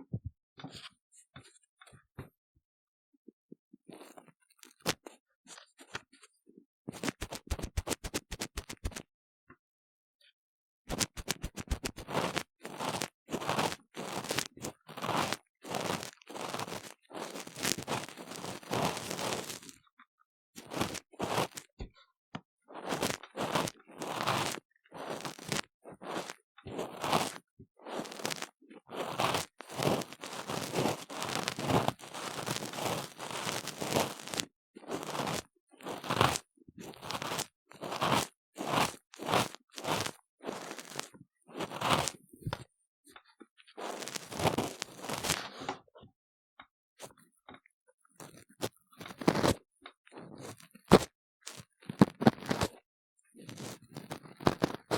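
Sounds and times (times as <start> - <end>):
tool scraping inside silicone ear: 6.9 - 9.0, 10.9 - 19.8, 20.6 - 21.7, 22.7 - 42.7, 43.8 - 45.7, 48.2 - 52.8, 53.4 - 54.9.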